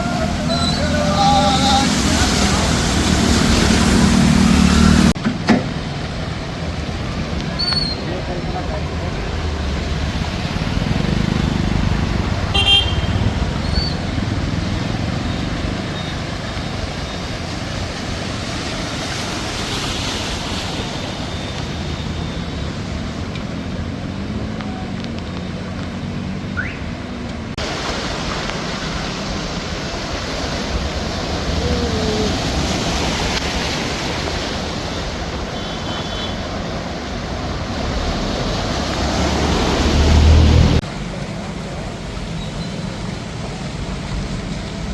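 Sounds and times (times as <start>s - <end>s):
vehicles passing: 0.0s - 44.9s
car horn toots: 12.5s - 13.4s, 35.5s - 36.4s.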